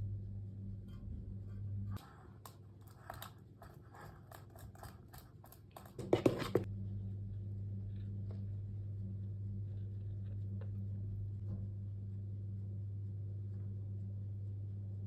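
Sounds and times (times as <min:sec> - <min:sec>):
low steady hum: 0:00.0 - 0:15.0
kitchen handling clicks and scrapes: 0:02.0 - 0:06.7.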